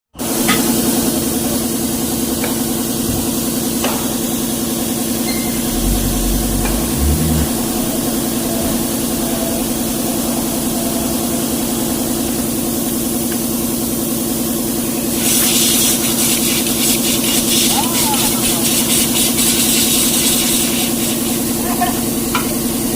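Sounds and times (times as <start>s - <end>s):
deep rumble: 5.3s - 10.2s
truck diesel engine idling: 5.4s - 11.4s.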